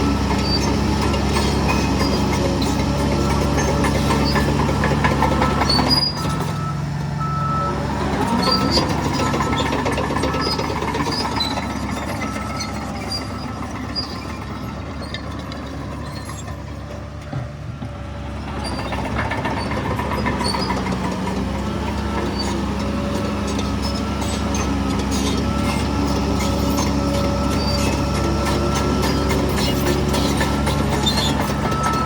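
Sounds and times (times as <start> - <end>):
diesel machinery engine: 0.0 - 32.0
reversing alarm beeping: 3.2 - 16.4, 21.7 - 32.0.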